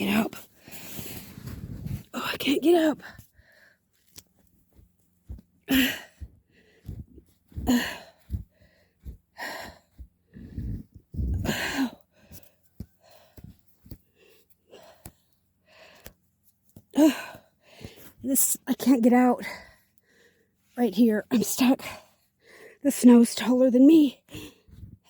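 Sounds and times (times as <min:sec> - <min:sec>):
woman breathing hard and gasping: 0:05.7 - 0:16.1, 0:17.0 - 0:18.2.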